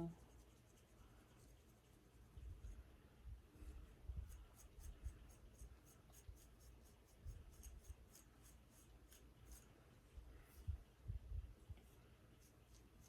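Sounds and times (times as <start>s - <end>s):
scratching on scalp: 0.0s - 2.9s, 3.6s - 10.8s, 11.7s - 13.0s
soft low bumps: 10.2s - 11.9s.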